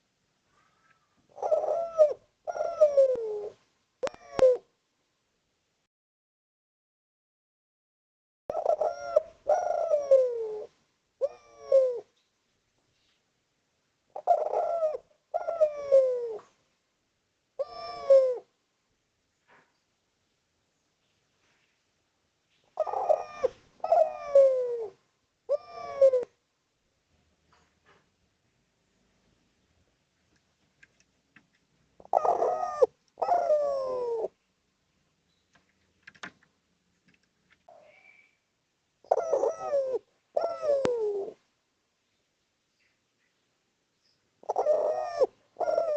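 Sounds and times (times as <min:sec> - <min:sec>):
dove cooing: 0:00.0 - 0:04.7, 0:08.5 - 0:12.2, 0:14.1 - 0:16.6, 0:17.6 - 0:18.5, 0:22.8 - 0:26.4, 0:32.0 - 0:34.4, 0:39.0 - 0:41.4, 0:44.4 - 0:45.9
faint clicks: 0:30.2 - 0:31.7.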